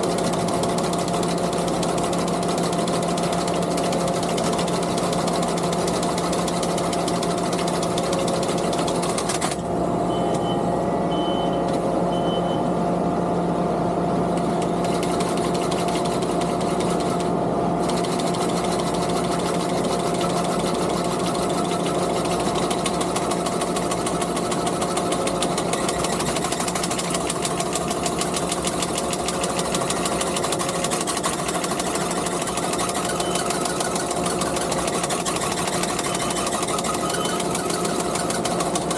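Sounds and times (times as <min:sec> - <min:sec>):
skid steer engine running: 0:00.0 - 0:10.5, 0:14.2 - 0:38.9.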